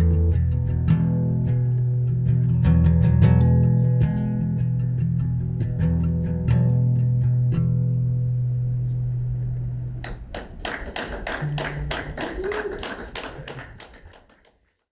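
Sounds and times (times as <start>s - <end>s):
guitar and bass chord ringing: 0.0s - 10.0s
people clapping: 10.0s - 14.9s.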